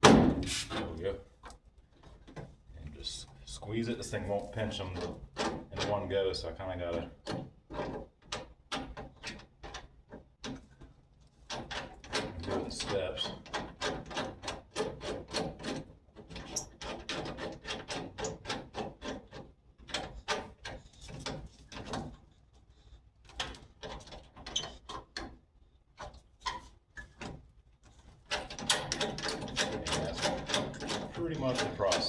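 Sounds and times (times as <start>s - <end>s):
rivet nut tool clicking and ratcheting: 28.3s - 32.0s.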